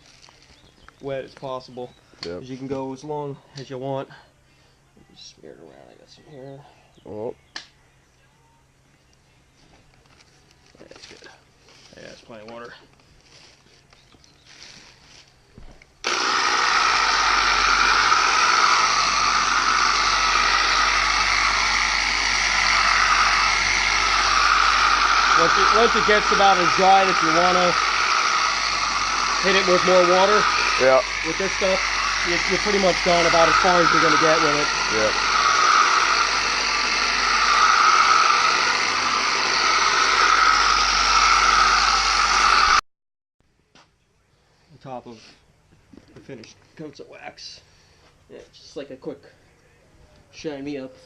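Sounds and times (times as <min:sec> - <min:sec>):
electric buffer motor whining: 0:16.0 - 0:42.8
electric polisher running: 0:16.0 - 0:42.8.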